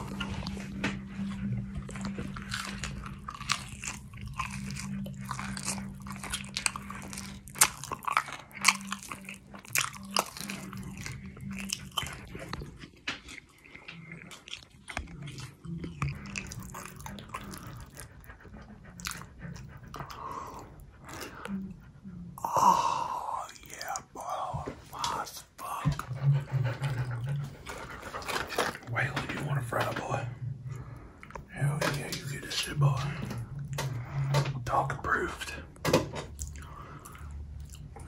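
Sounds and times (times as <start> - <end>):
person crunching crispy fries: 2.1 - 18.0.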